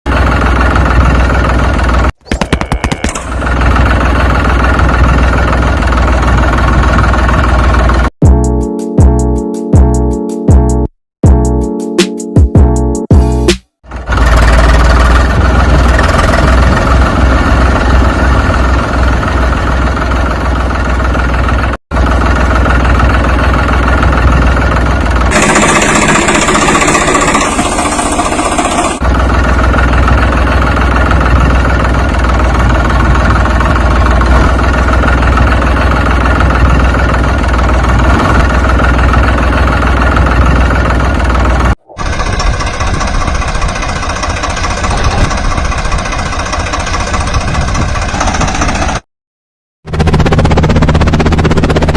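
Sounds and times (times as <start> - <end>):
engine rumbling: 0.1 - 9.2, 13.1 - 49.0.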